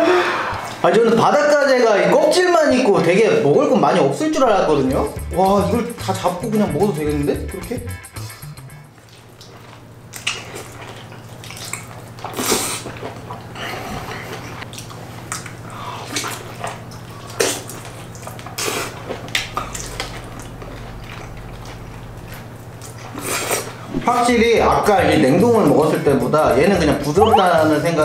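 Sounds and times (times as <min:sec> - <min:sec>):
steady low hum: 0:04.4 - 0:09.0, 0:19.5 - 0:23.2
wet chewing and lip-smacking: 0:08.1 - 0:13.4.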